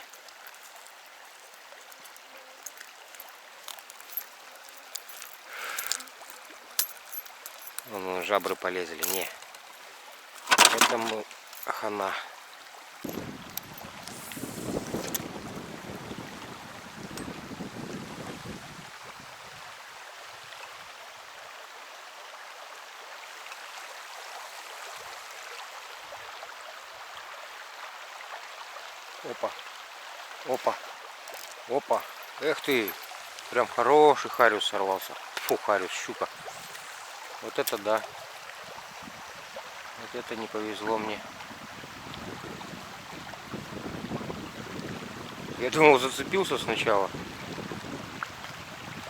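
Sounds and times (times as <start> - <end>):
small metal clicks and clinks: 0.0 - 11.8, 31.3 - 33.5, 37.5 - 38.1
flowing river water: 0.0 - 49.0
short rustling scrape: 14.1 - 15.2, 36.4 - 37.9.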